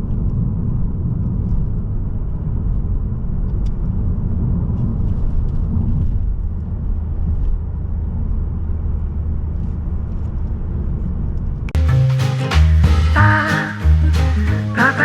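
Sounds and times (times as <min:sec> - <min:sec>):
car road and engine rumble: 0:00.0 - 0:11.8.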